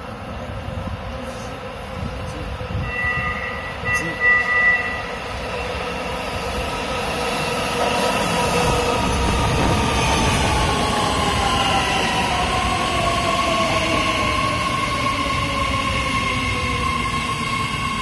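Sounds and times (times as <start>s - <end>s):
train rolling rumble: 0.0s - 18.0s
high two-note train horn: 2.8s - 5.1s.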